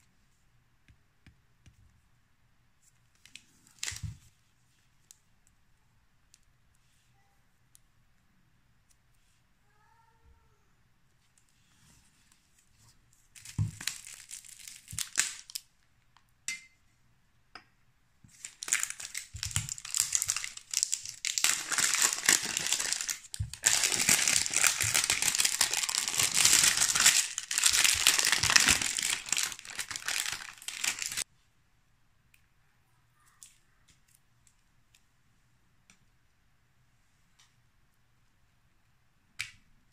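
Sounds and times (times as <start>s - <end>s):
plastic film tearing and crinkling: 13.4s - 15.6s, 18.3s - 31.2s.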